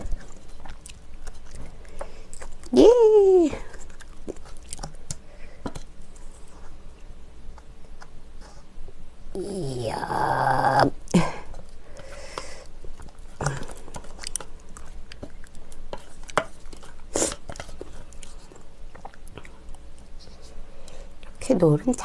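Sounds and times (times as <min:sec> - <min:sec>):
person chewing: 0:00.0 - 0:02.8, 0:03.6 - 0:06.8, 0:10.0 - 0:21.4.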